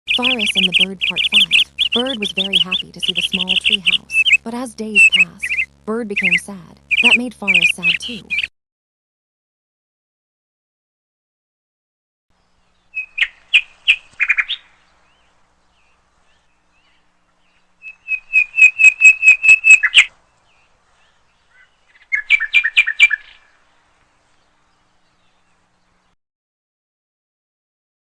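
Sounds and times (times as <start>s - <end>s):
small bird chirping: 0.1s - 8.5s, 12.4s - 23.6s.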